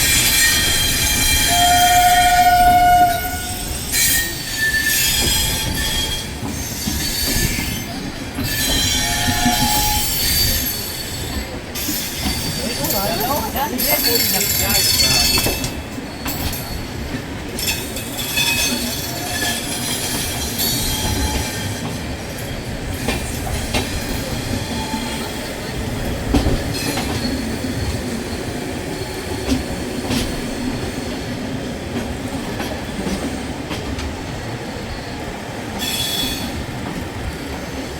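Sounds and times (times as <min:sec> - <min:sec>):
high wheel squeal: 0:00.0 - 0:13.0, 0:35.8 - 0:36.6
train wheels rumbling on track: 0:00.0 - 0:37.9.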